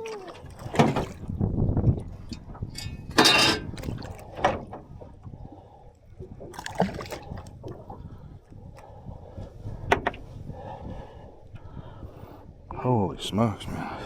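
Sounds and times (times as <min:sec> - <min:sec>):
water splashing: 0:00.0 - 0:02.3, 0:03.7 - 0:05.2, 0:06.2 - 0:08.0.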